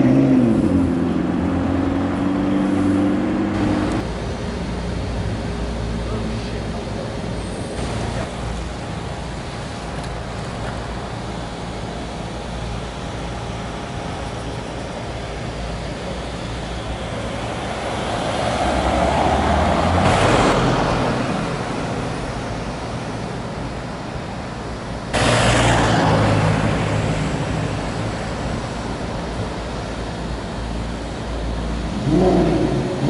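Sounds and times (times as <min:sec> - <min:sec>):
city street traffic: 0:00.0 - 0:33.0
loud vehicle: 0:00.0 - 0:33.0
car passing: 0:17.0 - 0:22.8, 0:25.1 - 0:29.1.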